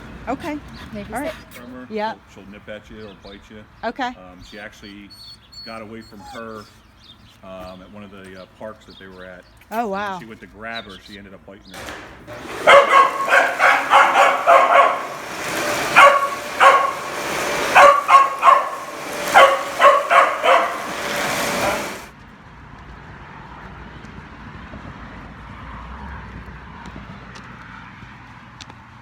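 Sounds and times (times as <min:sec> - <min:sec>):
puppy barking: 0:12.3 - 0:22.1.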